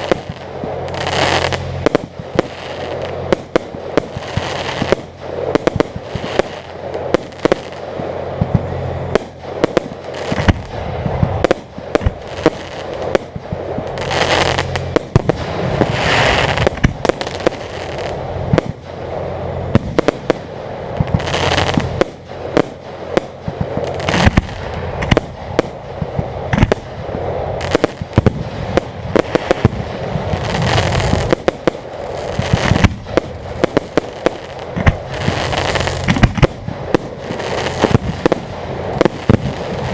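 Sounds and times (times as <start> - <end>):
fireworks bursts: 0.0 - 39.9
fireworks crackling and popping: 0.0 - 39.9.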